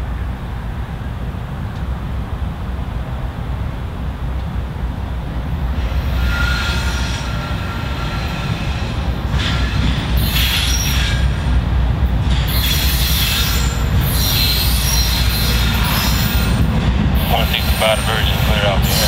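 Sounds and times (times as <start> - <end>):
diesel locomotives rumbling: 0.0 - 19.0
train wheel squeal: 5.8 - 11.6, 12.2 - 19.0.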